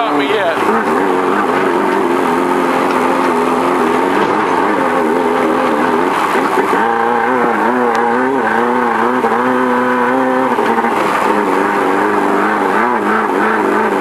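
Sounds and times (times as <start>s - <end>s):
race car engine revving: 0.0s - 14.0s.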